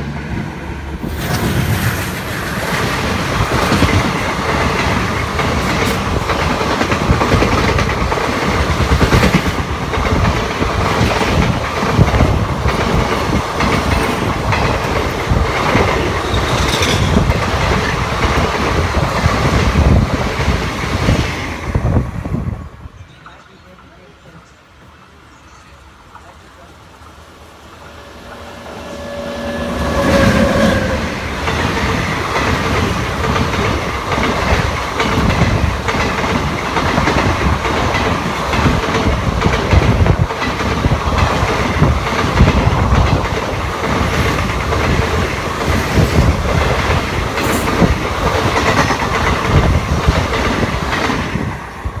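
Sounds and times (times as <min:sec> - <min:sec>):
passing train rush: 0:00.0 - 0:52.0
wheels clacking over rail joints: 0:28.3 - 0:51.4.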